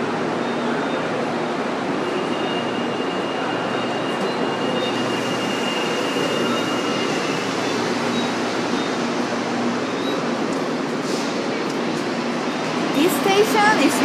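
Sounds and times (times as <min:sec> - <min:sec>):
metro train running: 0:00.0 - 0:14.0
thin high wheel squeal: 0:02.2 - 0:08.9.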